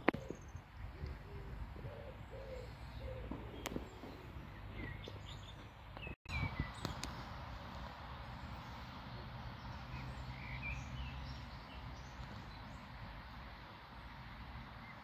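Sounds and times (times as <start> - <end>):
birds chirping and calling: 0.0 - 7.4, 9.4 - 12.9.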